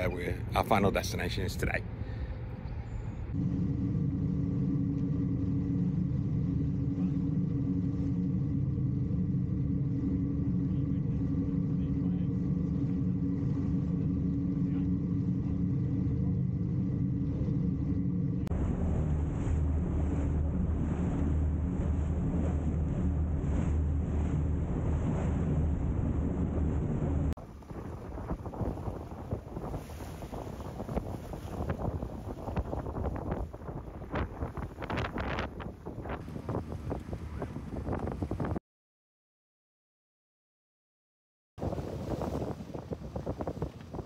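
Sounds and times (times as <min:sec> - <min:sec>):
boat engine droning: 0:00.0 - 0:38.6, 0:41.6 - 0:44.0
low rumble: 0:00.0 - 0:38.6
wind buffeting microphone: 0:18.4 - 0:38.6, 0:41.6 - 0:44.0.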